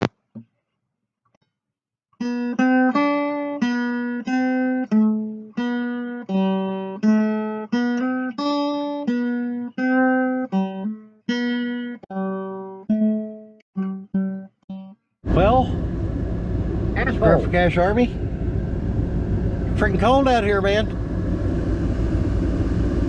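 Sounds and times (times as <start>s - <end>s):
acoustic guitar plucking: 2.2s - 15.6s, 17.0s - 17.8s.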